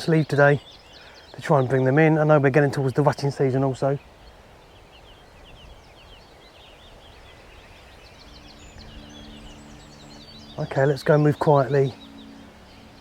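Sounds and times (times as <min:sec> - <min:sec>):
birds chirping in the distance: 0:00.0 - 0:13.0
faint low steady hum: 0:04.0 - 0:13.0.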